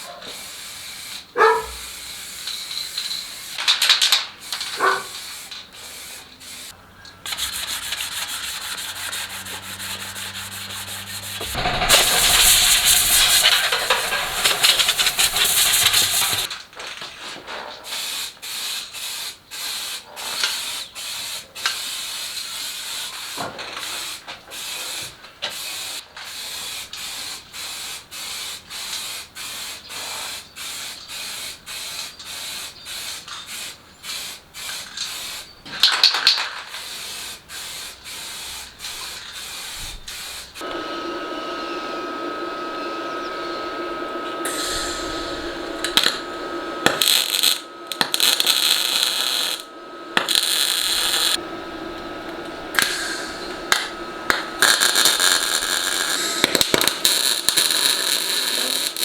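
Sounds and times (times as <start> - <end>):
hissing spray: 4.4 - 16.5, 36.8 - 59.0.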